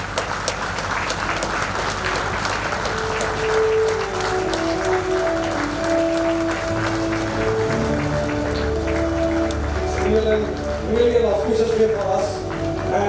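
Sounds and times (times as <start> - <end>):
crowd applauding: 0.0 - 13.0
music with held notes: 1.2 - 13.0.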